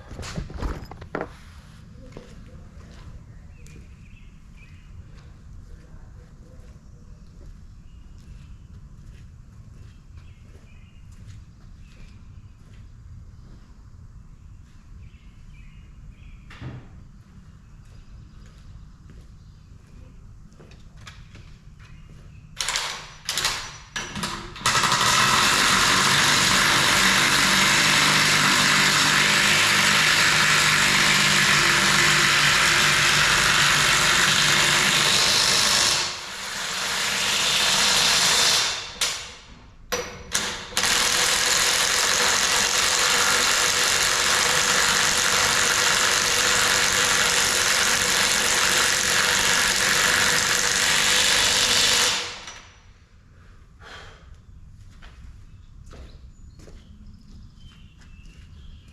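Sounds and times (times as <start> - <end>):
handheld power tool running: 22.6 - 39.5, 40.3 - 52.7.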